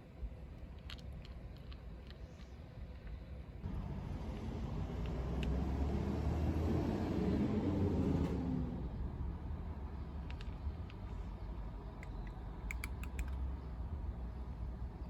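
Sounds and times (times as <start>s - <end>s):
vehicle driving past: 3.7s - 9.0s.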